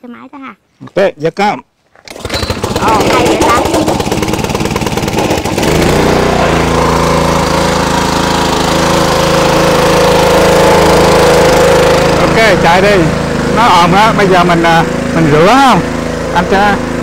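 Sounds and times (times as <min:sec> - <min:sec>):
small gasoline engine running: 0:02.0 - 0:17.0.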